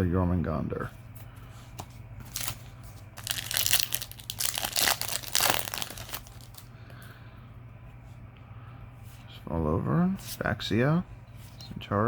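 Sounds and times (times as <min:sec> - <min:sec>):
foil wrapper crinkling and tearing: 0:02.3 - 0:02.6, 0:03.2 - 0:06.7.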